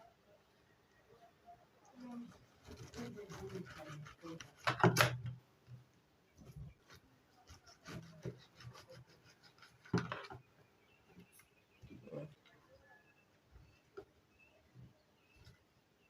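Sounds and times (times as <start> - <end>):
knife cutting fruit rind: 2.1 - 5.3, 7.4 - 10.4.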